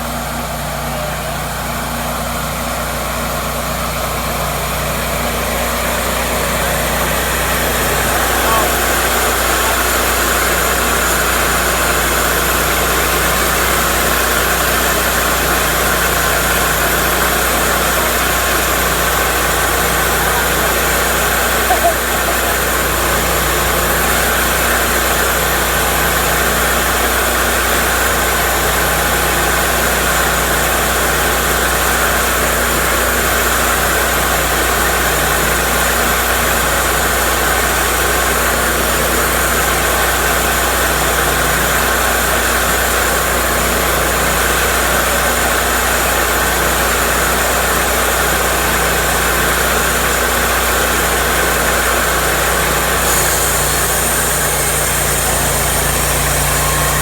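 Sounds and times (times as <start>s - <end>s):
bandsaw sawmill droning: 0.0s - 57.0s.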